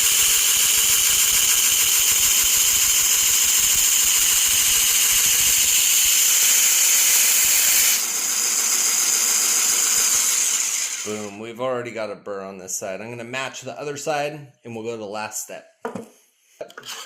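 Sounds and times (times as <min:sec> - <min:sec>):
belt grinder grinding steel: 0:00.0 - 0:11.4.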